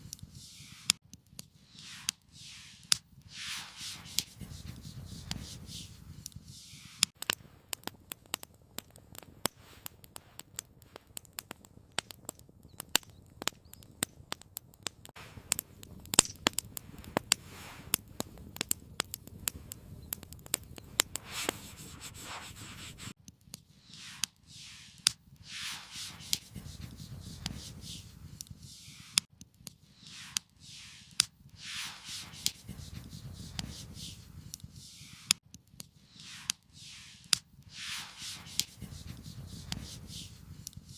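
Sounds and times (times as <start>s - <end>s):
campfire crackling and popping: 0.0s - 40.9s
rasping strokes: 20.5s - 23.2s, 23.8s - 29.3s, 29.9s - 35.4s, 36.1s - 40.9s.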